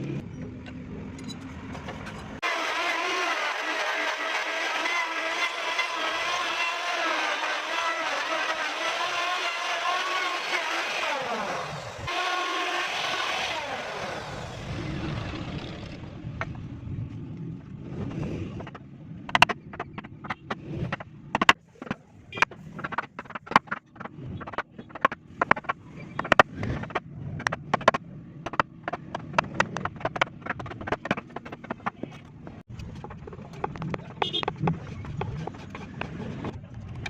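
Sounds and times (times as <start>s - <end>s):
sharp irregular knocks: 18.5s - 36.5s.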